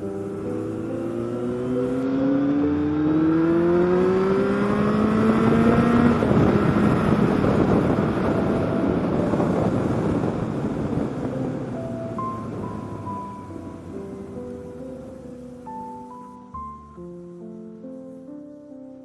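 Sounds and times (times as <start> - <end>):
motorcycle engine accelerating: 0.0 - 13.9
loud wind rush: 0.0 - 15.7.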